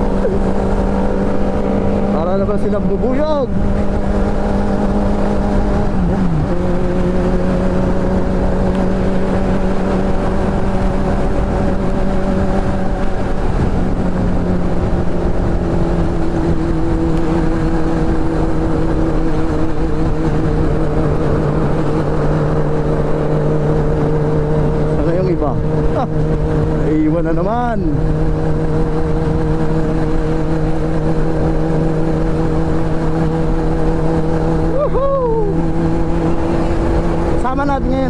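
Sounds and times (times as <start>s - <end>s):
motorcycle engine running: 0.0s - 38.0s
wind noise: 0.0s - 38.0s.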